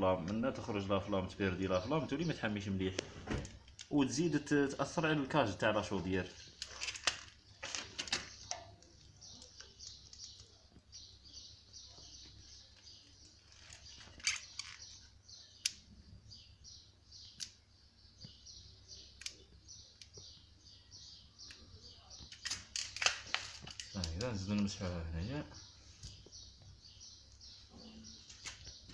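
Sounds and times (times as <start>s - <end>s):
small bird chirping: 6.0s - 28.9s.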